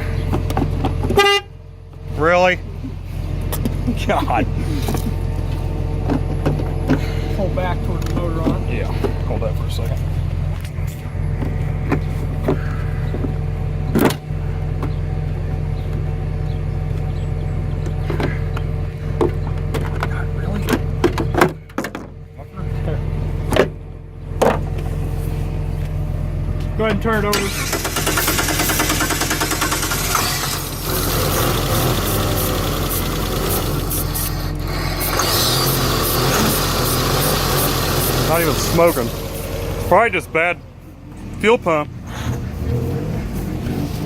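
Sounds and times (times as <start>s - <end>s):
vehicle engine idling: 0.0s - 44.0s
engine cranking on starter: 27.2s - 40.0s.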